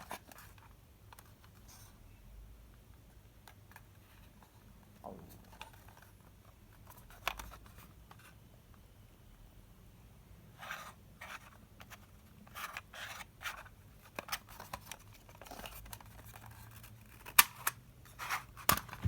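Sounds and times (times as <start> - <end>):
packaging rustling and scraping: 12.6 - 19.0.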